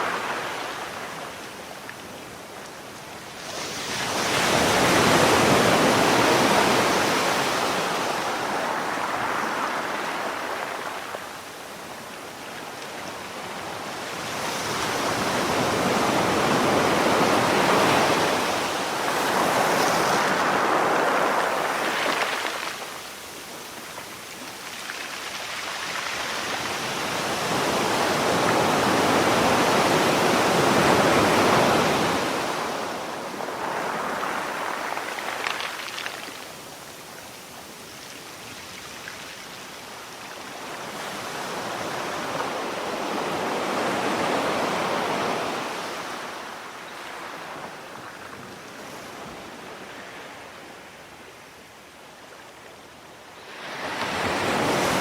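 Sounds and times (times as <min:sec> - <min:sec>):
sea waves washing on shore: 0:00.0 - 0:37.9.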